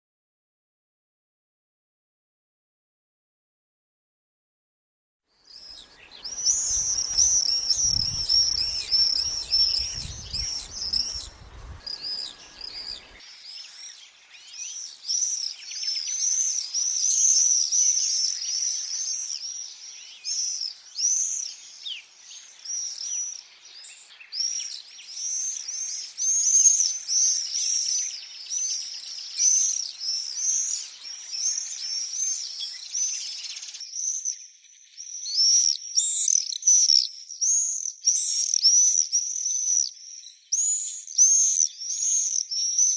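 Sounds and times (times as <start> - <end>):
swifts screaming: 5.5 - 34.3.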